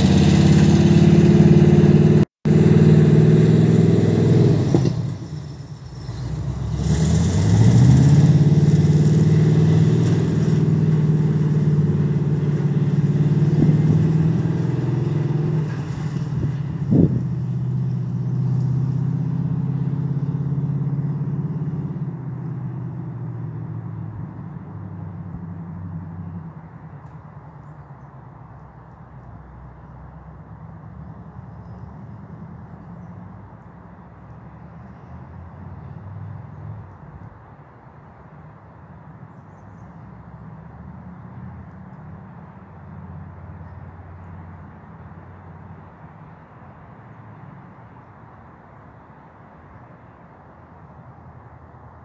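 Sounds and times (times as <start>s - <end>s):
vehicle engine running: 0.0s - 15.4s.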